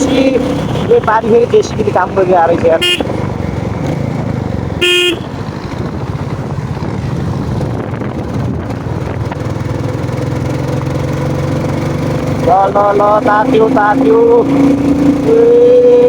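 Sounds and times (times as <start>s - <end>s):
motorcycle engine running: 0.0s - 16.0s
horn blast: 2.8s - 3.1s, 4.8s - 5.3s.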